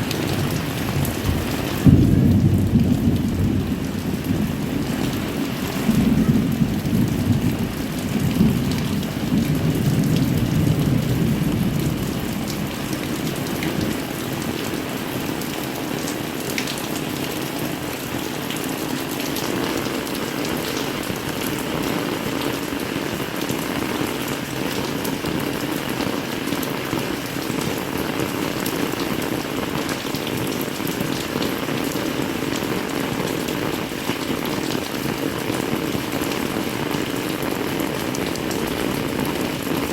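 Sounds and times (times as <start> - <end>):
heavy rain: 0.0 - 39.9
thunder rumble: 0.1 - 14.1.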